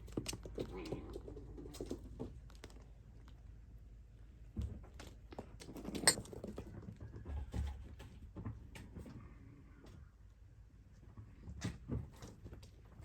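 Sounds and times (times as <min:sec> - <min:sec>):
kittens scuffling and clicking: 0:00.0 - 0:03.5.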